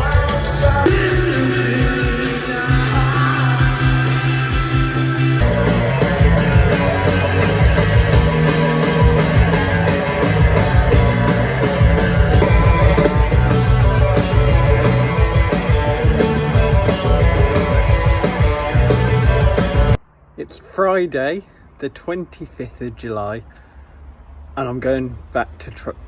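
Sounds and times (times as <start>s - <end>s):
rock music: 0.0s - 20.0s.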